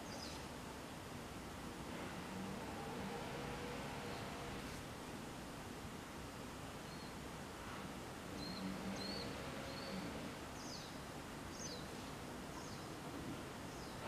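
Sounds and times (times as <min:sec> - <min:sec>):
small bird chirping: 0:00.0 - 0:00.4, 0:08.4 - 0:13.0
steady background hiss: 0:00.0 - 0:14.0.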